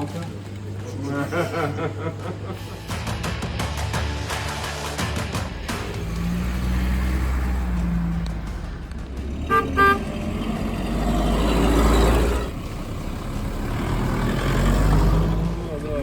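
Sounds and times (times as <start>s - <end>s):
vehicle engine rumbling: 4.3s - 16.0s
car horn toots: 9.4s - 10.6s.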